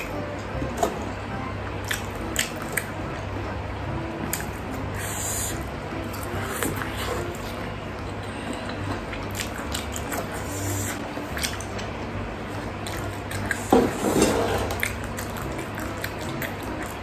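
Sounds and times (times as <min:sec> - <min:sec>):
electric fan humming: 0:00.0 - 0:17.0
wet chewing: 0:01.8 - 0:03.3, 0:04.2 - 0:12.0, 0:12.6 - 0:17.0.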